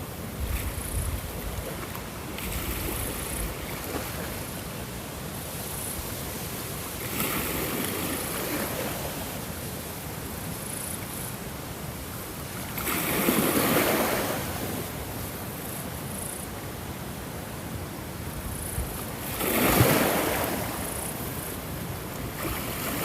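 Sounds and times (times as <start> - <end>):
ocean waves breaking: 6.9 - 9.5, 12.6 - 15.0, 19.1 - 23.0.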